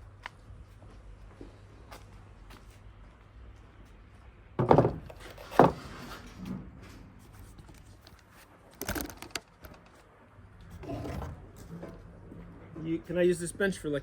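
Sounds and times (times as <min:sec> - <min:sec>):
knocks of objects being handled: 0:04.6 - 0:05.8, 0:08.8 - 0:10.0.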